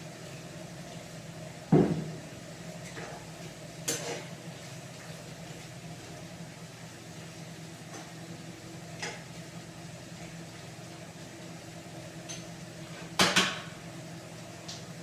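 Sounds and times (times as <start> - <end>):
kitchenware clatter: 3.9 - 4.3, 13.2 - 13.7.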